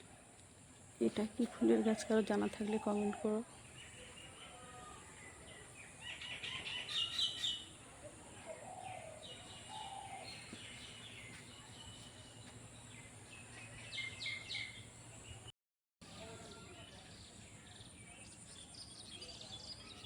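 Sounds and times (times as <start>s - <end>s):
small birds chirping: 1.0s - 15.5s.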